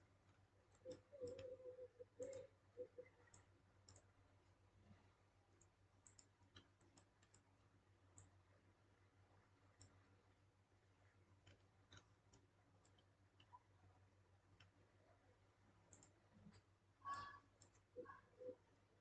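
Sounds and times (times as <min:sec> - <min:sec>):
computer mouse clicking: 0:00.3 - 0:01.6, 0:02.2 - 0:04.2, 0:05.5 - 0:07.5, 0:08.1 - 0:08.4, 0:09.7 - 0:10.1, 0:11.4 - 0:13.7, 0:15.8 - 0:18.0.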